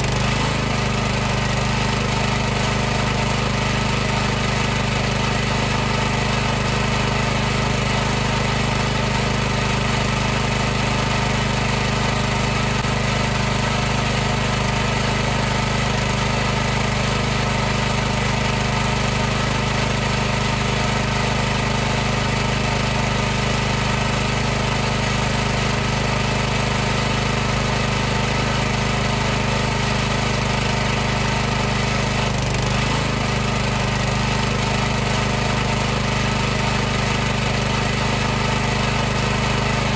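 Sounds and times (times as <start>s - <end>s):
pressure washer running: 0.0s - 39.9s.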